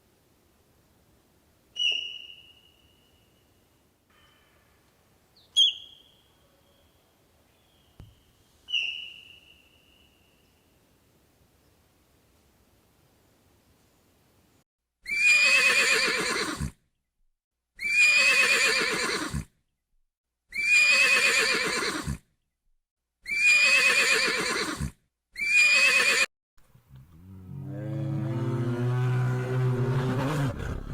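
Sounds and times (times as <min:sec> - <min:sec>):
horse-like whinny: 0:15.1 - 0:16.8, 0:17.8 - 0:19.5, 0:20.6 - 0:22.2, 0:23.3 - 0:26.3.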